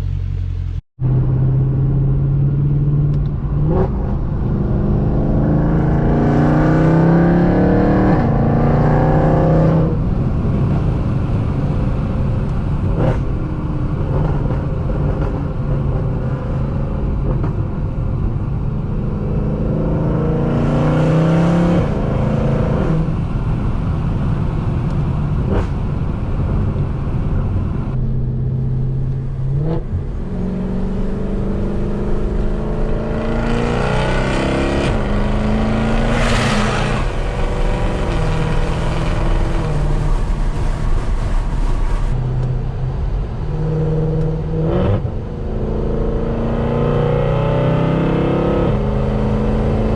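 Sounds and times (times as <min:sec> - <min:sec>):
car engine revving: 0:00.0 - 0:24.3, 0:24.9 - 0:49.9
exhaust cracks: 0:34.2 - 0:43.2.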